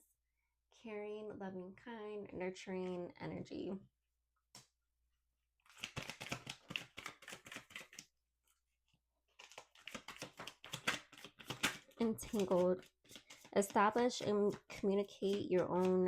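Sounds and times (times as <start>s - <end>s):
cards being shuffled: 5.6s - 8.1s, 9.3s - 16.0s.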